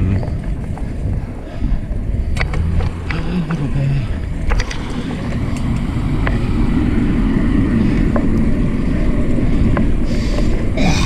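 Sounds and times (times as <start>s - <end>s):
bike tyre rumble: 0.0s - 11.0s
wind buffeting microphone: 0.0s - 11.0s
sharp clicks: 2.3s - 3.6s.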